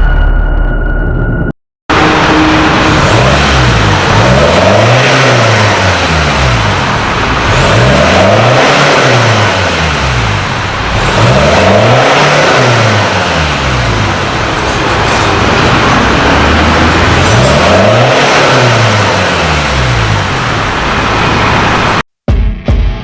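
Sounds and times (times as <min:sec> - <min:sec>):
diesel engine revving: 0:01.9 - 0:22.1.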